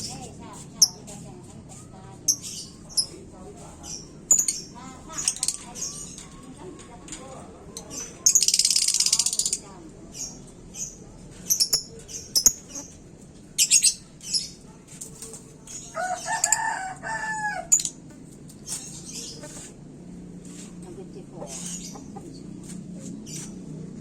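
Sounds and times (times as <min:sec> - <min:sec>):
lovebirds chirping: 0:01.9 - 0:13.0.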